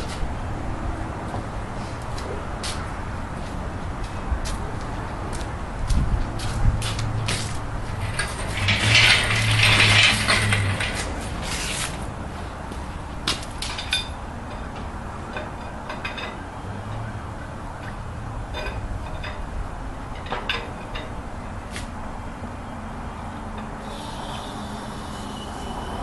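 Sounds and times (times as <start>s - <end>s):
scraping and grinding: 7.3s - 12.1s
hoist chain clicking and rattling: 7.9s - 11.8s.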